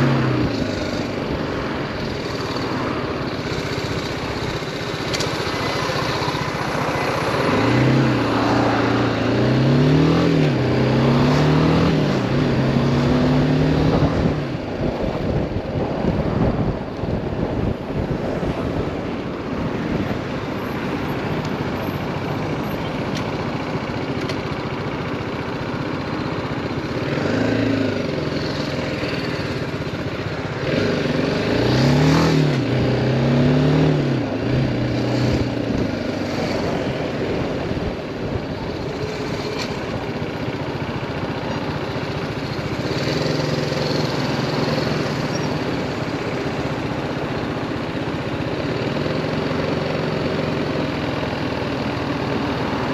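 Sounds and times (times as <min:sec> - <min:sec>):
motorcycle engine running: 0:00.0 - 0:52.9
road and wind noise: 0:00.0 - 0:52.9.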